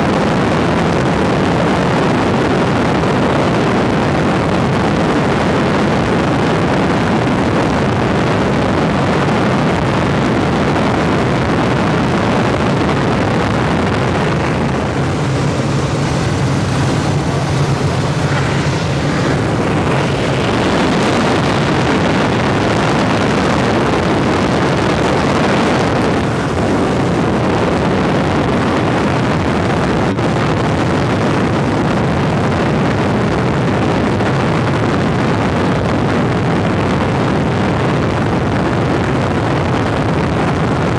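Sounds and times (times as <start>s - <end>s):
helicopter engine and rotor din: 12.2s - 29.9s.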